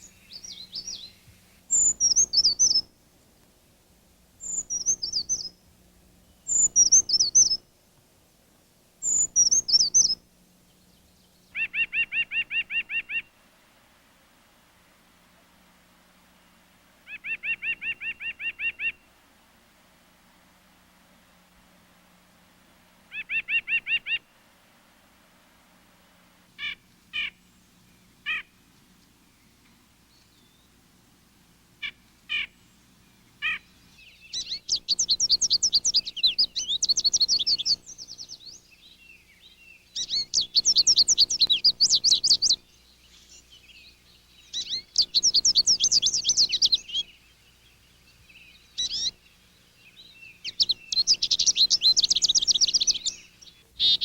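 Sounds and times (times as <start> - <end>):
songbirds calling and singing: 0.0 - 3.0, 4.4 - 8.4, 9.0 - 13.4, 17.1 - 19.2, 26.6 - 31.0, 31.7 - 54.0.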